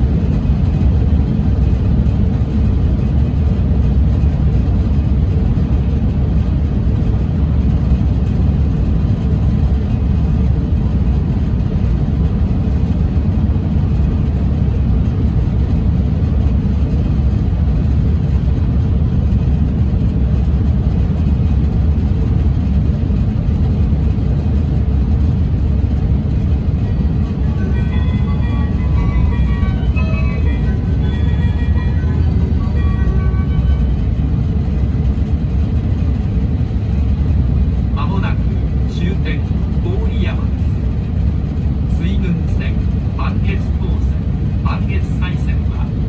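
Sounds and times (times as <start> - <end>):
train rumbling at speed: 0.0 - 46.0.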